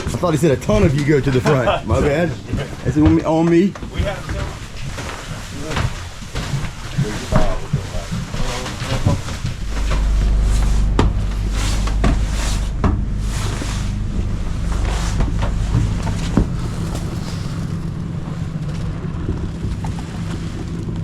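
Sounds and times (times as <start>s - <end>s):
boat motor rumbling: 0.0s - 21.0s
wind buffeting microphone: 6.0s - 21.0s.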